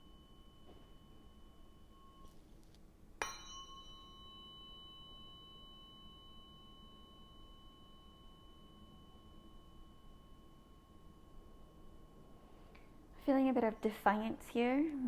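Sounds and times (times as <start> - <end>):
tuning fork ringing: 0.0 - 14.9.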